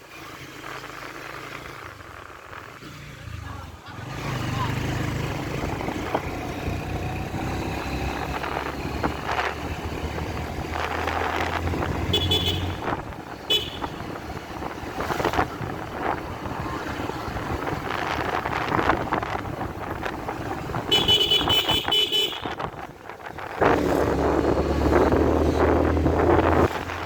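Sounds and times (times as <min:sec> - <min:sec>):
road and traffic noise: 0:00.0 - 0:27.0
motorcycle engine running: 0:00.2 - 0:26.9
motorcycle horn toots: 0:11.9 - 0:14.2, 0:20.8 - 0:22.8.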